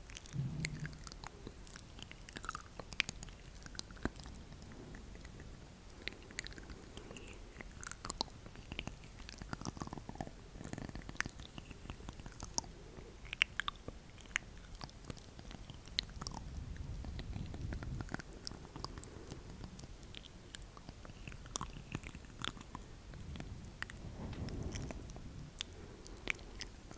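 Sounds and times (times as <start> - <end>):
short falling tone: 0.4 - 1.3.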